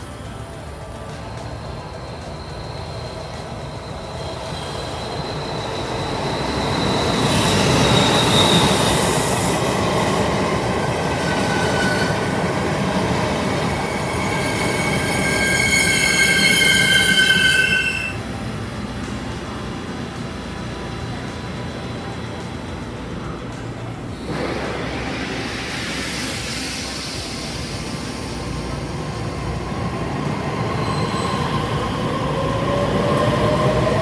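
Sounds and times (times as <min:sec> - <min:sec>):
train rumbling on rails: 0:00.0 - 0:34.0
high-pitched wheel squeal: 0:01.9 - 0:09.4, 0:11.1 - 0:12.5, 0:13.6 - 0:18.2, 0:30.6 - 0:32.0.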